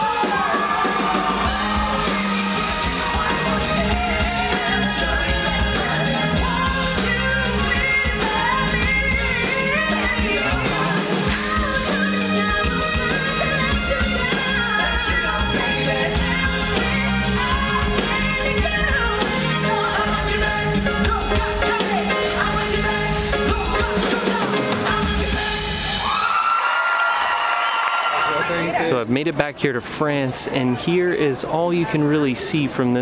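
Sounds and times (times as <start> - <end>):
live rock band with singing: 0.0 - 26.4.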